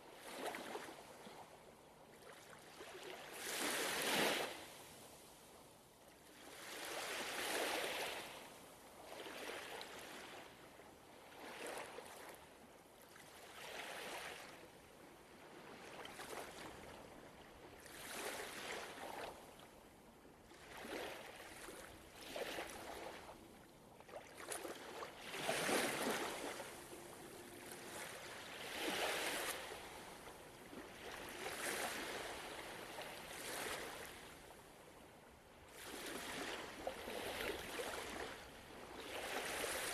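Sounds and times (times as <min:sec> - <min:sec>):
ocean waves washing onto shore: 0:20.5 - 0:34.9.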